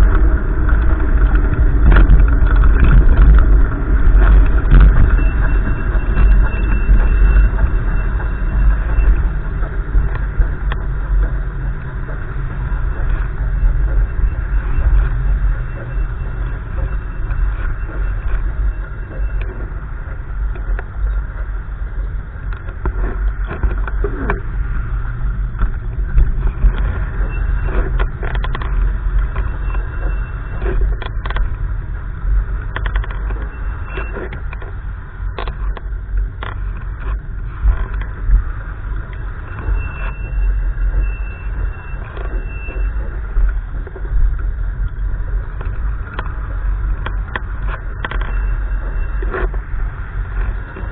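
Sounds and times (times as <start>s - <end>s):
wind buffeting microphone: 0.0s - 50.9s
small clicks and knocks: 22.4s - 24.5s, 25.1s - 31.7s, 32.4s - 40.2s, 41.5s - 50.9s.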